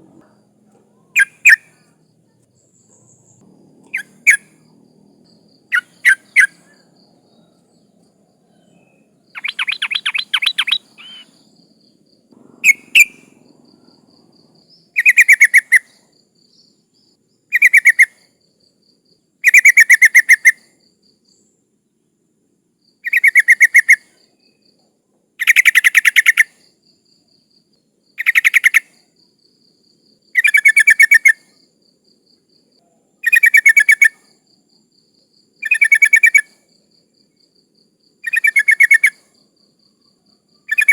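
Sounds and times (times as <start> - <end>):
bird stuttering chattering calls: 3.9 - 4.6, 5.7 - 6.8, 9.4 - 11.4, 12.6 - 13.3.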